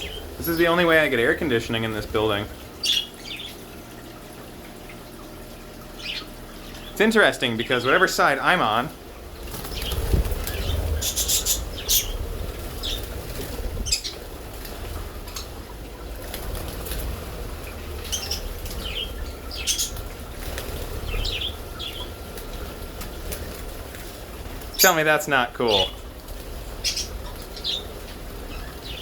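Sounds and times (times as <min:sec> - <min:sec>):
bird wings flapping: 0:09.3 - 0:24.8.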